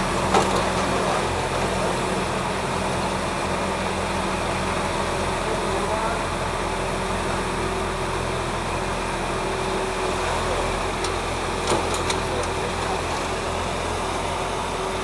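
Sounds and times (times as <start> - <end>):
tractor diesel engine running: 0.0 - 15.0
faint voices: 10.1 - 14.4.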